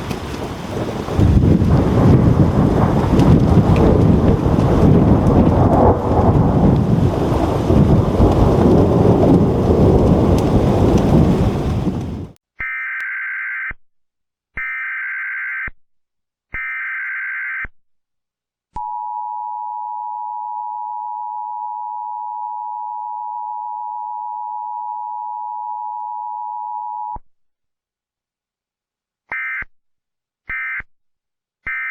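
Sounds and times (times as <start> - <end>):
thunderstorm rain: 0.0 - 12.4
data header tones: 18.8 - 27.2, 31.7 - 31.9
steady attention tone: 18.8 - 27.2.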